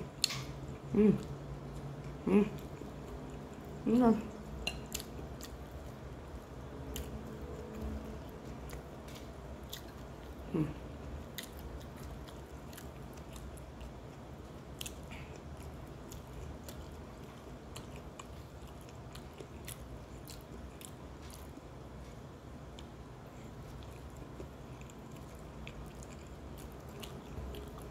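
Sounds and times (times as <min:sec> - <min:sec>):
person humming: 0:00.9 - 0:01.3, 0:10.5 - 0:10.8
chewing and wet mouth clicks: 0:04.5 - 0:05.9, 0:23.7 - 0:27.9.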